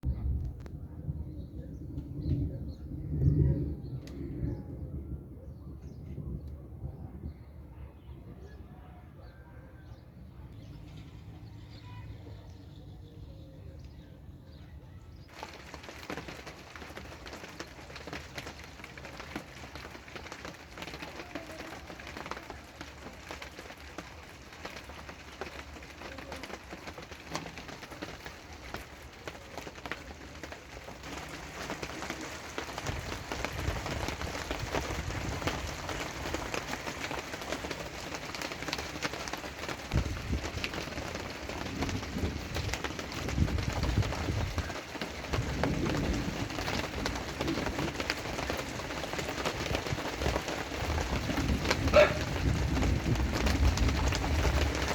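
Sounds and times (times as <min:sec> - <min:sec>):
low rumble: 0:00.0 - 0:07.4
rain falling: 0:15.3 - 0:54.9.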